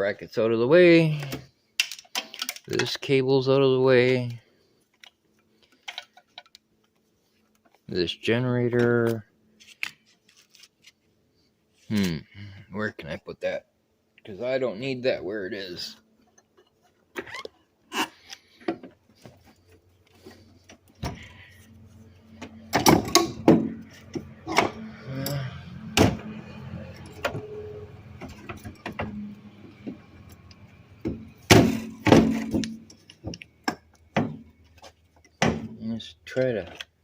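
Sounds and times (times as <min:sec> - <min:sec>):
metal parts knocking and clunking: 0:01.2 - 0:03.0, 0:22.4 - 0:25.4, 0:31.0 - 0:35.8.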